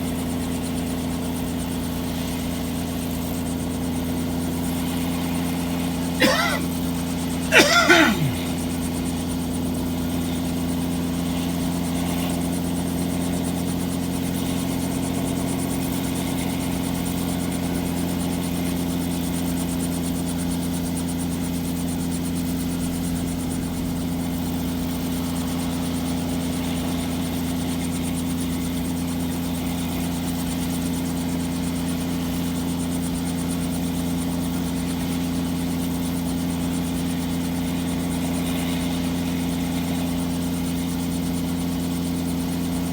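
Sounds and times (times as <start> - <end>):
helicopter engine and rotor: 8.6 - 38.4, 39.1 - 42.9.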